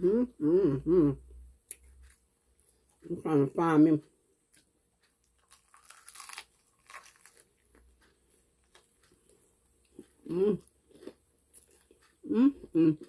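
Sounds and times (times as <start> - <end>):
crispy fried chicken crunching: 4.6 - 13.0.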